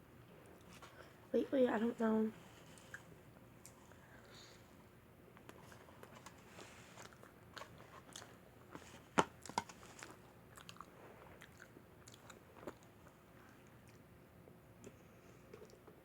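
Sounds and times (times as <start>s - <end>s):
person chewing pizza: 5.4s - 8.8s, 9.4s - 14.2s, 14.8s - 16.0s.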